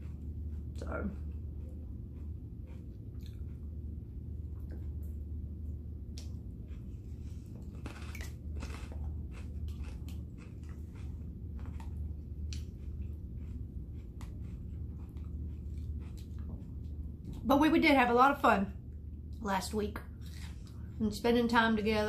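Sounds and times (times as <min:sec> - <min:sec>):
person chewing food: 0:00.0 - 0:17.5
steady low hum: 0:00.0 - 0:22.0.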